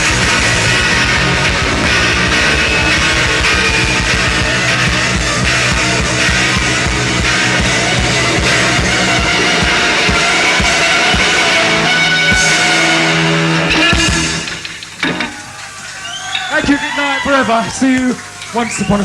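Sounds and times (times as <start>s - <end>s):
fast dense drumming: 0.0s - 15.0s
live rock band playing: 0.0s - 19.0s.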